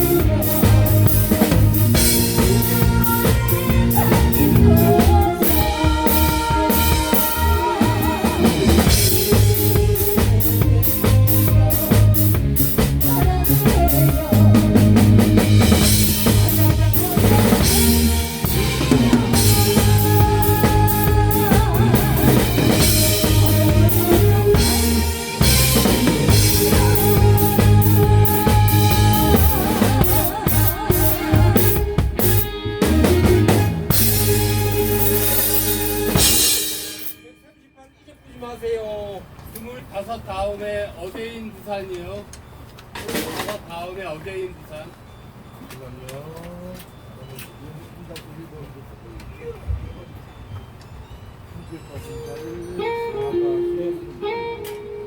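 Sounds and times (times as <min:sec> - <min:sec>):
drum kit beat: 0:00.0 - 0:37.4
live band playing: 0:00.0 - 0:39.4, 0:49.7 - 0:55.0.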